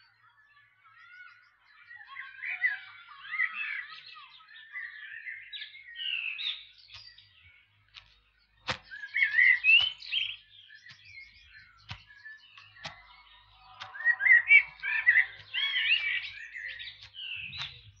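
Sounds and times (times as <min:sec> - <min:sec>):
songbirds chirping and singing: 0:00.0 - 0:18.0
sharp clicks: 0:07.9 - 0:18.0.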